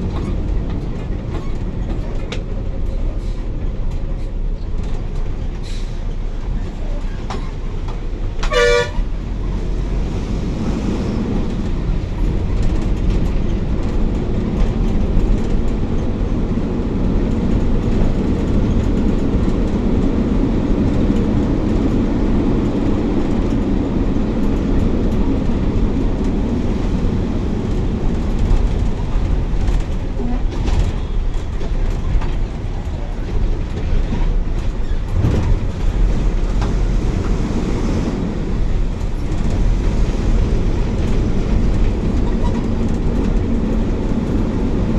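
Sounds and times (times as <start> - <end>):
bus engine and tyre rumble: 0.0 - 44.9
vehicle horn: 8.4 - 9.1.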